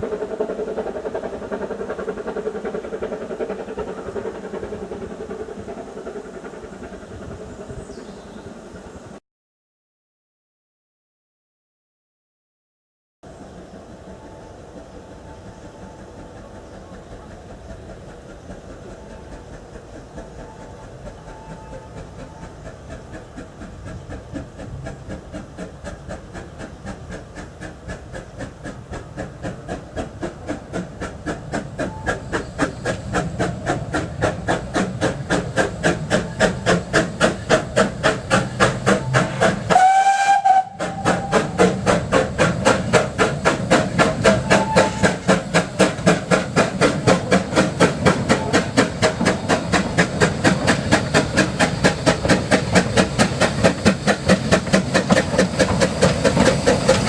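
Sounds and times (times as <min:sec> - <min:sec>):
steam locomotive exhaust beats: 0:00.0 - 0:09.2, 0:13.2 - 0:57.0
steam locomotive whistle: 0:38.8 - 0:41.9, 0:44.0 - 0:45.4.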